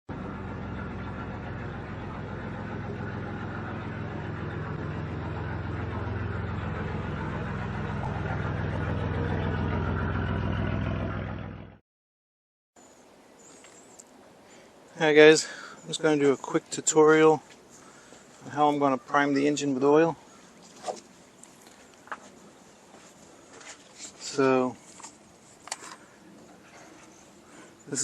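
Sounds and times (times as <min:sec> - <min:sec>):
car engine idling: 0:00.1 - 0:11.7.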